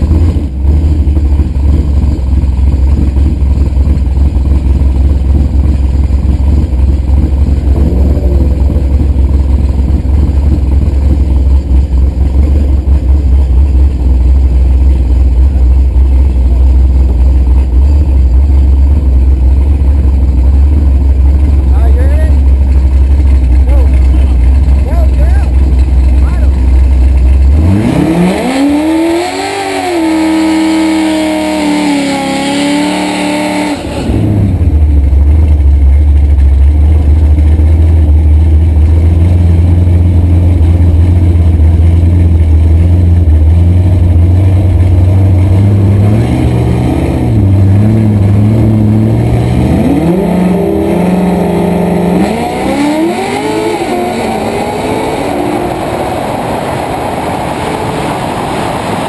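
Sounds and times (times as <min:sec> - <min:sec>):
car engine idling: 0:00.0 - 0:59.0
car engine revving: 0:00.0 - 0:59.0
car accelerating through upshifts: 0:27.6 - 0:34.5, 0:45.3 - 0:59.0.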